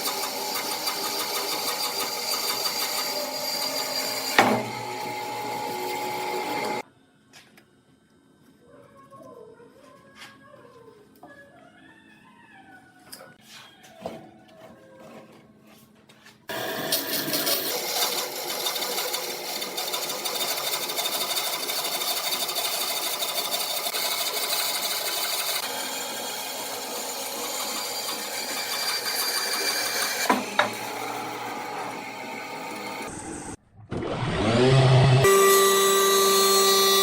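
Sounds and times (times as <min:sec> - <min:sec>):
power tool grinding wood: 0:00.0 - 0:06.8, 0:16.5 - 0:37.0.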